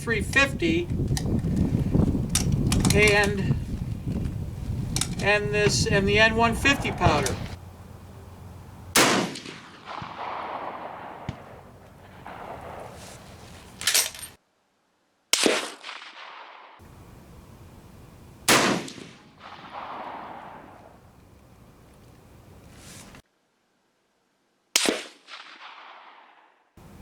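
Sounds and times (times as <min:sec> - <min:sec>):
rifle shots echoing: 0:04.7 - 0:14.4, 0:15.3 - 0:21.7, 0:24.8 - 0:27.0.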